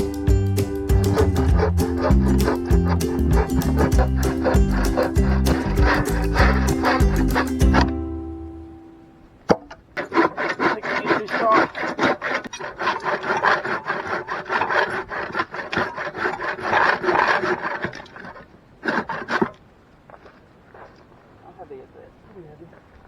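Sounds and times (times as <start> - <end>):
hand saw cutting wood: 0.6 - 8.0, 9.5 - 19.6.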